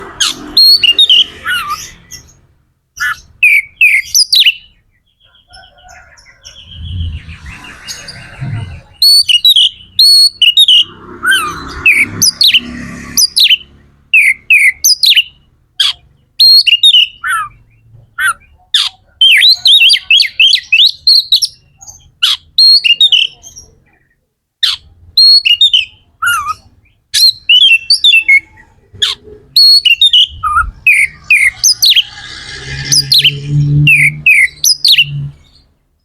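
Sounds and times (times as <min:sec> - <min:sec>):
bird singing: 0:00.0 - 0:36.0
low rumble: 0:06.5 - 0:09.0.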